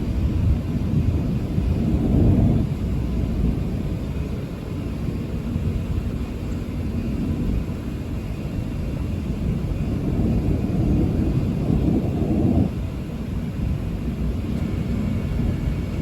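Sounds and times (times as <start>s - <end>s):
rolling thunder: 0.0s - 4.2s, 9.1s - 16.0s.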